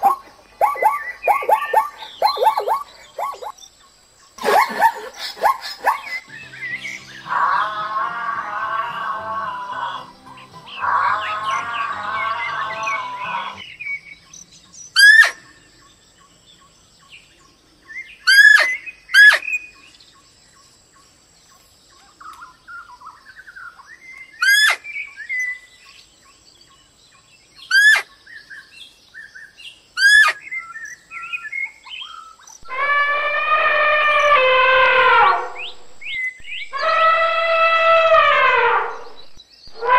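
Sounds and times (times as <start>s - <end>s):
soft bird chirps: 0.0s - 7.7s, 35.5s - 36.9s
sharp bird calls: 0.0s - 16.7s, 17.3s - 20.2s, 21.9s - 39.9s.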